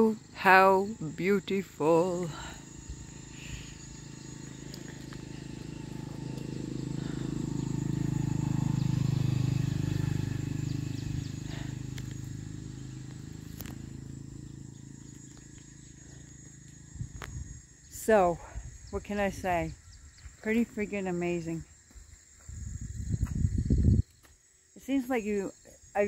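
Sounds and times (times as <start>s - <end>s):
vehicle engine passing: 2.3s - 17.0s.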